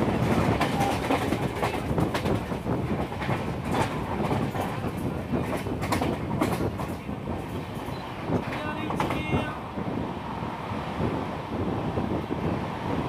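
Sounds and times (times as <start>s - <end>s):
clacks over rail joints: 0.0s - 9.6s
train wheels rumbling on rail: 0.0s - 13.0s.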